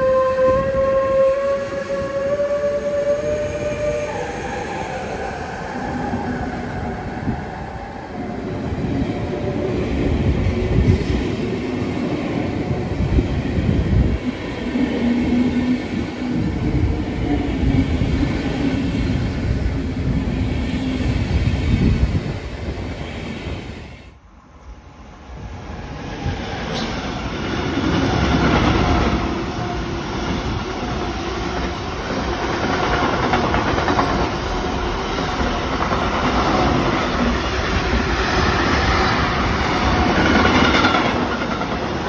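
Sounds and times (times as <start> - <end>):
train wheels rumbling and clacking: 25.6 - 42.0.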